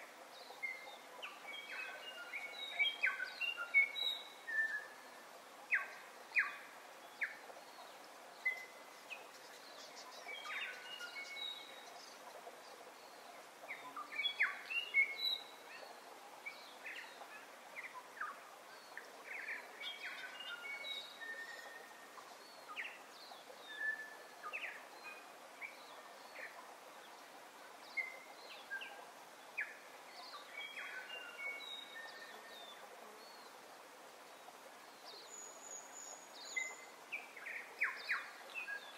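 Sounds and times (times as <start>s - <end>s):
many birds chirping: 0.0s - 27.2s
steady background hiss: 0.0s - 38.9s.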